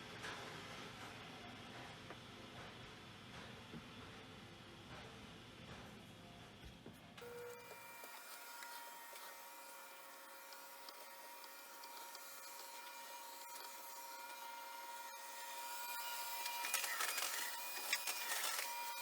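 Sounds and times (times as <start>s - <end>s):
cassette tape transport whirring: 7.2s - 19.0s.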